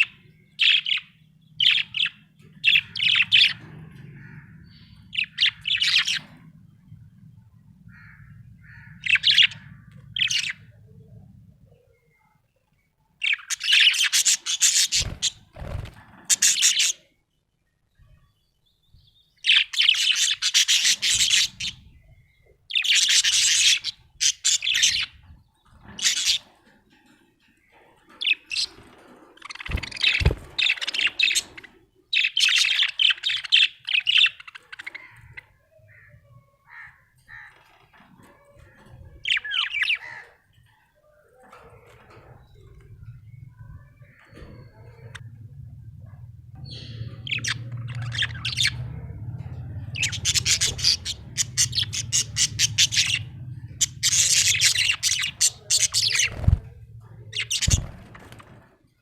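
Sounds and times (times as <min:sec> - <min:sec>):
budgerigar chirping and warbling: 0:46.6 - 0:58.2.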